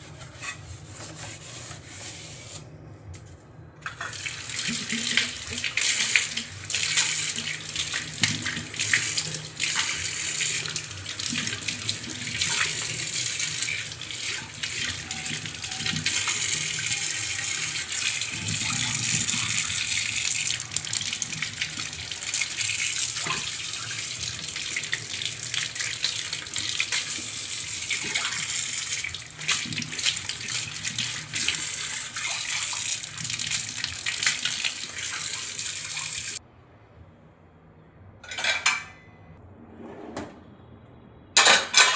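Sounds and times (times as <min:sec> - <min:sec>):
tap water running into sink: 0:03.9 - 0:36.4.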